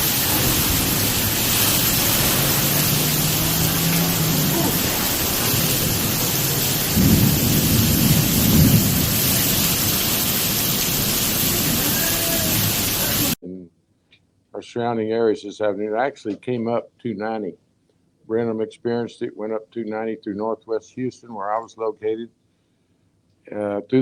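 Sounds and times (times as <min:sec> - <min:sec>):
heavy storm rain: 0:00.0 - 0:13.4
wind: 0:00.0 - 0:13.4.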